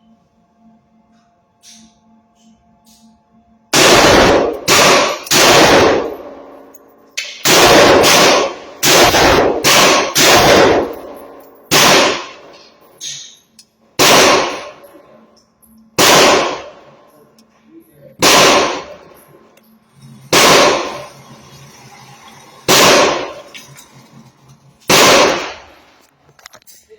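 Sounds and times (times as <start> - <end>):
gunshots with reverberation: 3.8 - 6.6, 7.2 - 13.3, 14.0 - 14.9, 16.0 - 16.9, 18.2 - 19.2, 20.3 - 21.1, 22.7 - 23.5, 24.9 - 25.9.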